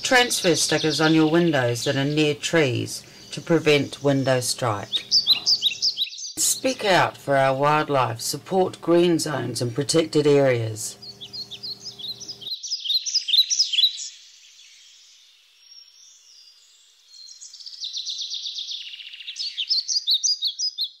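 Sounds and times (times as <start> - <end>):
birds chirping and trilling: 0.0 - 21.0.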